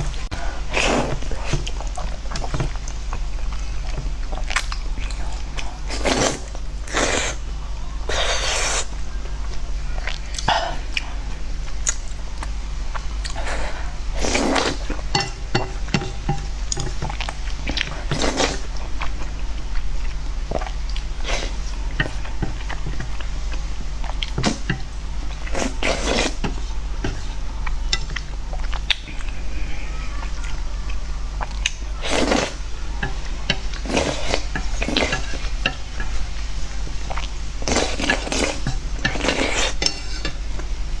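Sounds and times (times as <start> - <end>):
steady low hum: 0.0 - 41.0
chewing with wet clicks: 1.7 - 5.8, 27.2 - 29.4.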